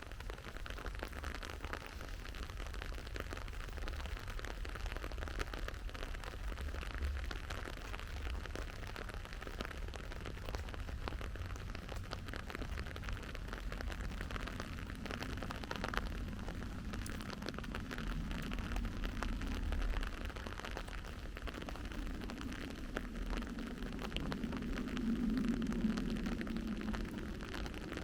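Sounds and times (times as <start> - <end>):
steady rainfall: 0.0 - 28.0
low rumble: 6.1 - 28.0.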